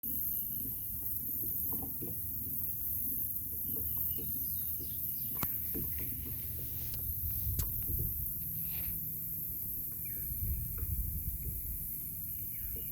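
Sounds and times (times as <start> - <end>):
high steady hiss: 0.0 - 12.9
low rumble: 7.0 - 12.8.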